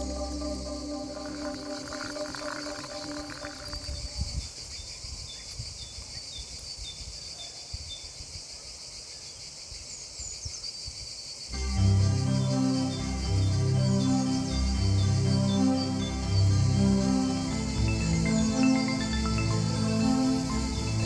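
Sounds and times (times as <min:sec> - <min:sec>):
background music: 0:00.0 - 0:04.2, 0:11.6 - 0:21.0
insects chirping: 0:00.0 - 0:21.0
wind gusts on microphone: 0:01.3 - 0:08.6.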